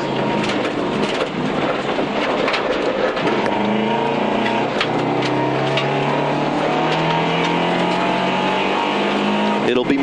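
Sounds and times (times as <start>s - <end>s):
rally car engine from inside cabin: 0.0s - 10.0s
stones clicking against car: 0.2s - 8.1s.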